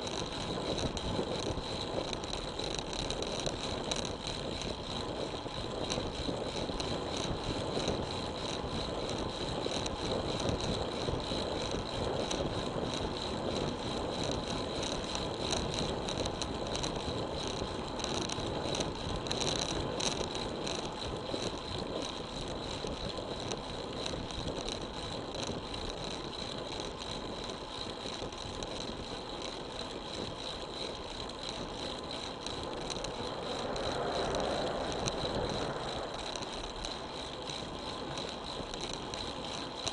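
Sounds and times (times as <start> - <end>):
bike rattling: 0.0 - 39.9
wind: 0.0 - 39.9
tyre on road noise: 29.7 - 39.9.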